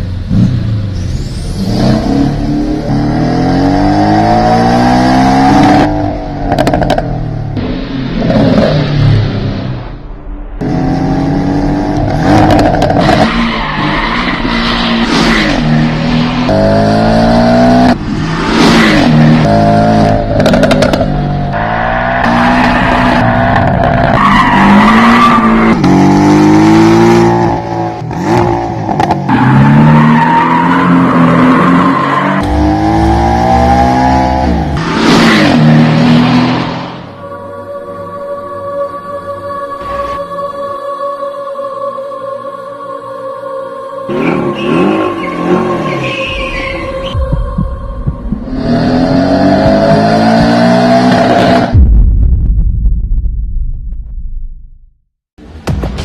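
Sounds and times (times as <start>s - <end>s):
car engine accelerating hard: 48.4s - 51.8s.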